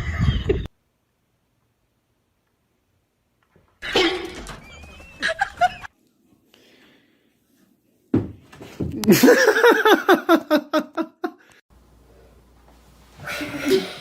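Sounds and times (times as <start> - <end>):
person laughing hard: 5.2 - 5.9, 9.0 - 11.4.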